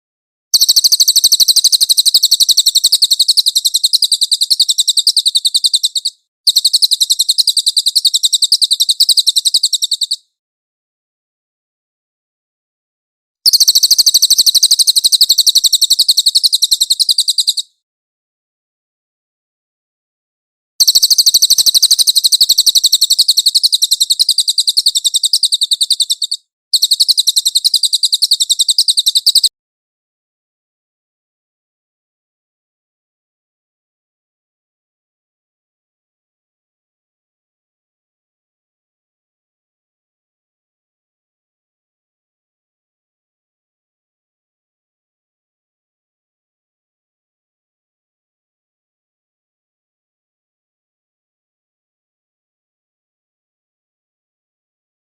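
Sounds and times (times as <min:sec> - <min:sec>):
bird singing high-pitched trill: 0:00.6 - 0:10.2, 0:13.5 - 0:17.7, 0:20.8 - 0:29.5.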